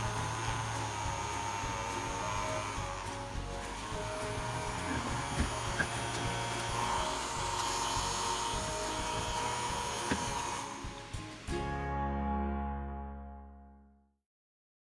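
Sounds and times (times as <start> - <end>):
small vacuum motor whining: 0.0 - 11.3.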